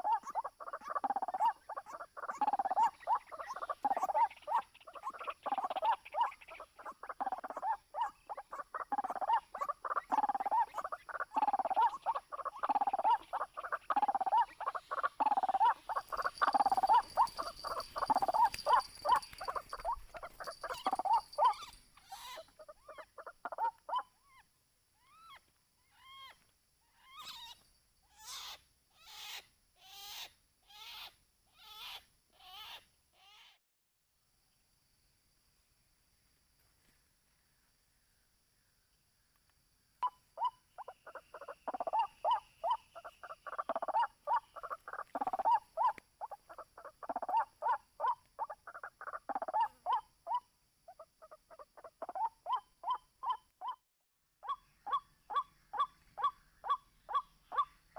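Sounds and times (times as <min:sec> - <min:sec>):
waterhen calling: 0:00.0 - 0:24.1, 0:40.0 - 0:50.4.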